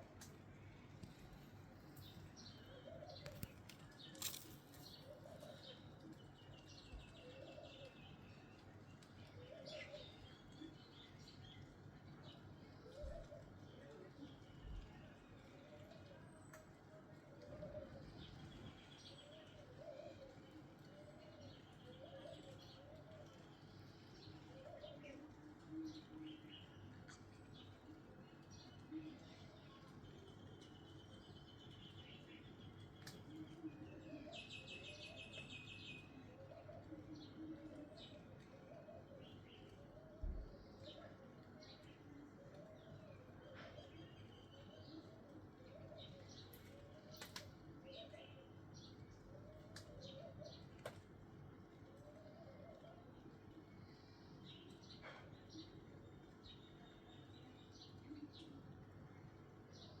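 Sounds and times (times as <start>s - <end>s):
small birds chirping: 0.1s - 16.8s, 17.4s - 60.0s
dove cooing: 5.0s - 5.8s, 9.4s - 10.1s, 12.8s - 13.6s, 17.3s - 18.3s, 19.2s - 23.5s, 24.4s - 26.4s, 36.2s - 48.4s, 49.2s - 50.8s, 51.8s - 53.2s.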